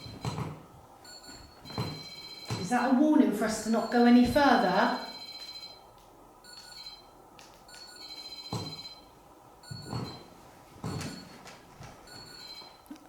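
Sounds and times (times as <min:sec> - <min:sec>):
high-pitched electronic alarm tones: 0:00.0 - 0:03.0, 0:03.6 - 0:10.3, 0:12.1 - 0:12.8.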